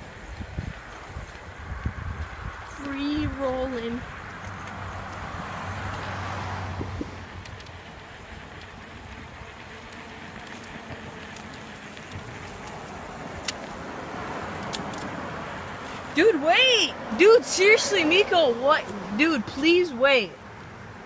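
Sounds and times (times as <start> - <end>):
wind on microphone: 0.0 - 7.6
bicycle free-rolling: 0.0 - 21.0
sharp clicks: 7.4 - 7.8, 9.9 - 13.8, 14.5 - 15.2.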